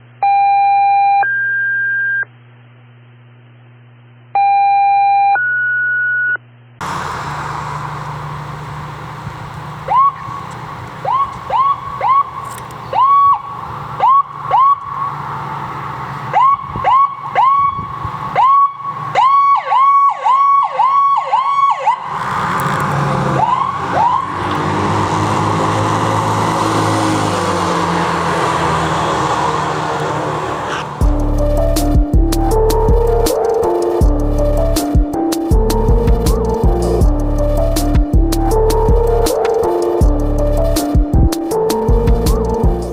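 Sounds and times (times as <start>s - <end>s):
siren chirps: 4.4s - 22.2s, 23.1s - 31.9s
vehicle engine accelerating: 6.8s - 19.2s, 21.9s - 42.9s
road and engine noise: 6.8s - 42.9s.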